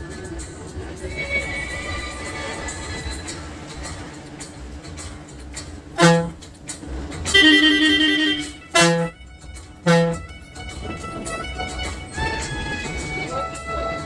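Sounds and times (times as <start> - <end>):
bus running on road: 0.0 - 14.0
music from sound system: 0.0 - 14.0
bus horn blasts: 6.0 - 6.4, 7.3 - 14.0
warbling horn tone: 6.0 - 6.4, 7.3 - 14.0.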